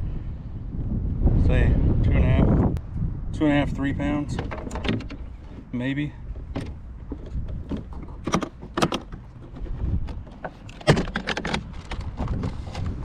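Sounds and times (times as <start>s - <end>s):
wind rumble on microphone: 0.0s - 13.0s
gear clicks and knocks: 4.3s - 5.7s, 6.3s - 13.0s.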